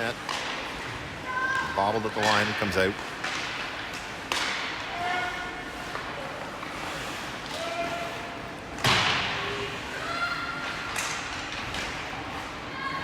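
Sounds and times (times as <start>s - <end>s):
loud bang against rink boards: 4.3s - 4.8s, 8.8s - 9.4s.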